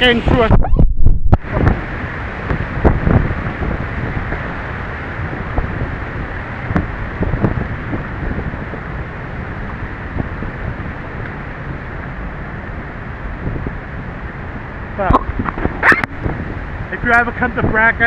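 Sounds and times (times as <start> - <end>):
wind buffeting microphone: 0.0 - 18.0
waterfall rushing: 1.4 - 18.0.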